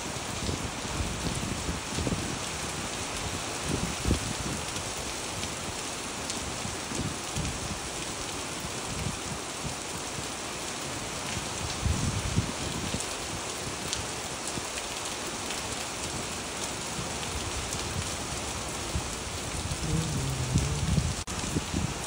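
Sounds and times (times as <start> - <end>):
rain on wet pavement: 0.0 - 22.0
low rumbles: 19.6 - 21.3.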